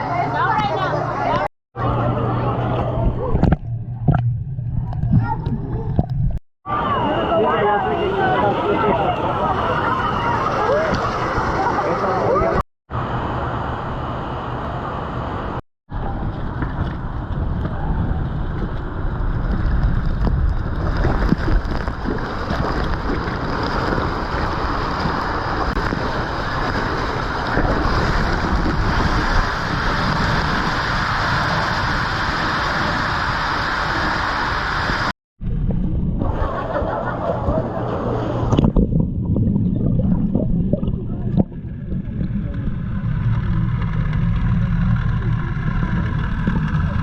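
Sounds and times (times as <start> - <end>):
rushing water: 7.7 - 13.4, 19.2 - 35.1
wind buffeting microphone: 16.0 - 34.2.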